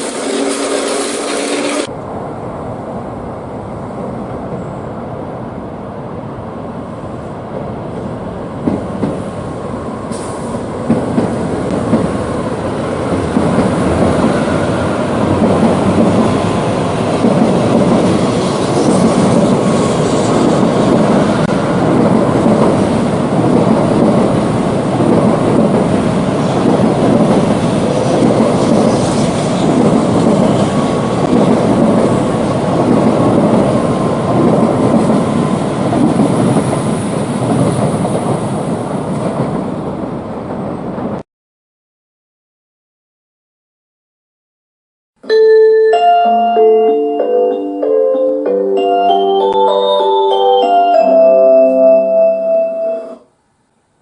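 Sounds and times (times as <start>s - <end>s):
rail clatter: 0.0s - 1.9s, 8.6s - 9.4s, 10.0s - 41.2s
train rumbling on track: 0.0s - 41.2s.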